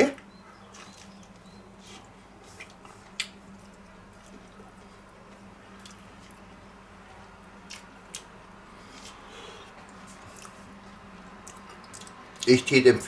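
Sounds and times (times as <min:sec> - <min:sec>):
faint steady hum: 0:00.0 - 0:13.0
person chewing: 0:00.7 - 0:06.4, 0:07.6 - 0:10.7, 0:11.4 - 0:12.5.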